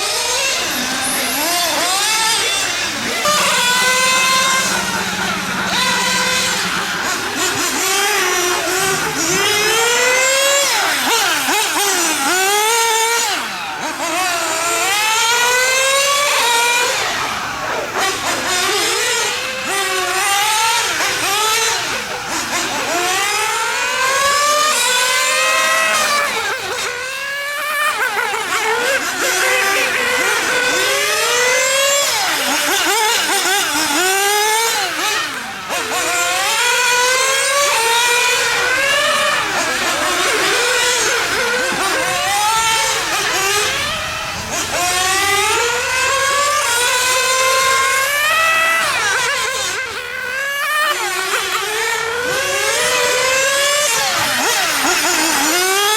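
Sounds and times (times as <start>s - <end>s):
model car engines revving: 0.0s - 55.9s.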